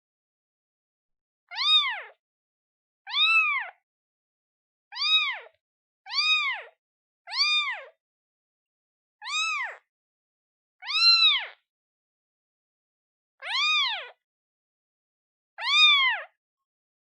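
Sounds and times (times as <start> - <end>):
newborn kitten meowing: 1.5 - 2.2, 3.1 - 3.8, 4.9 - 8.0, 9.2 - 9.9, 10.8 - 11.6, 13.4 - 14.2, 15.6 - 16.4.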